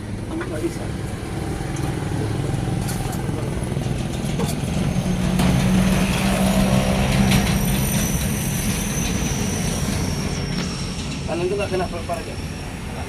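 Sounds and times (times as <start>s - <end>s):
vehicle engine running: 0.0s - 9.4s.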